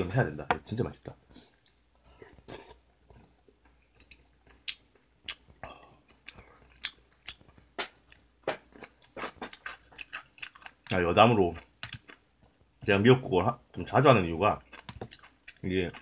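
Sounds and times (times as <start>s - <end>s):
wet chewing and smacking: 3.1s - 12.9s, 14.6s - 16.0s
kimchi bitten and chewed: 3.7s - 12.2s, 14.6s - 16.0s.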